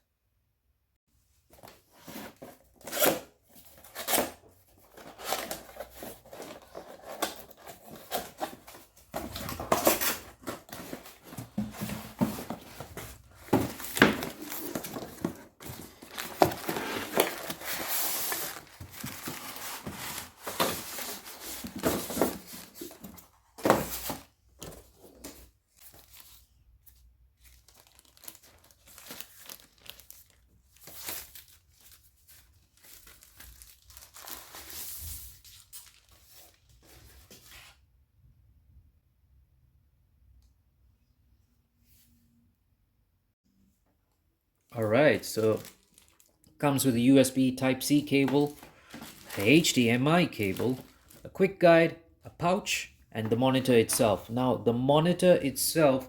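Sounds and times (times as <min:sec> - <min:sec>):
packaging tearing and crinkling: 0:27.6 - 0:31.6, 0:32.8 - 0:36.1, 0:45.4 - 0:46.4.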